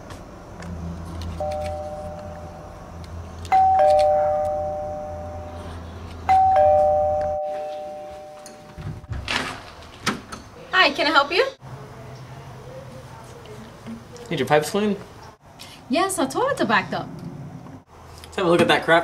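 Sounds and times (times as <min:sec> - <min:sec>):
doorbell chiming ding-dong: 0:03.6 - 0:05.6, 0:06.3 - 0:08.8.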